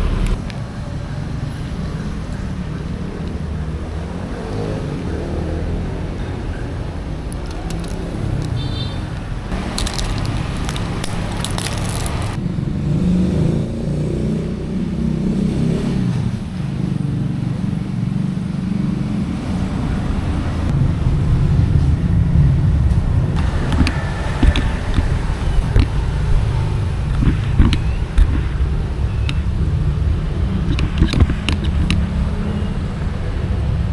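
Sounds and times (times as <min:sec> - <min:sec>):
vehicle engine low rumble: 0:00.0 - 0:33.9
rustling and crackling: 0:07.1 - 0:12.4, 0:23.4 - 0:28.6
sharp clicks: 0:07.2 - 0:12.4.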